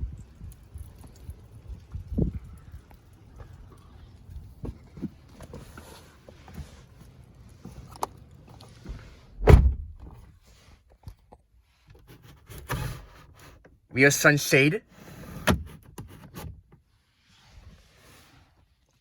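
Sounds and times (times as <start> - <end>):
car door thunking shut: 9.3 - 10.2.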